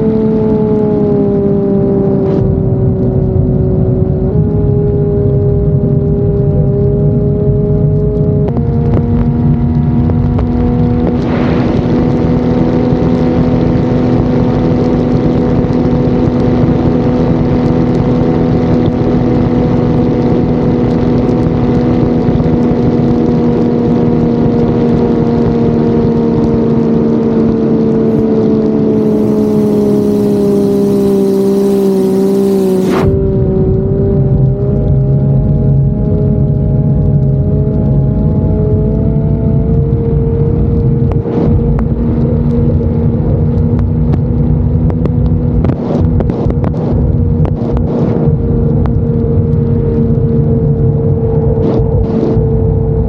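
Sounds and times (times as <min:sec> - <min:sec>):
race boat engine running hard: 0:23.0 - 0:33.2
hiss: 0:28.9 - 0:33.1.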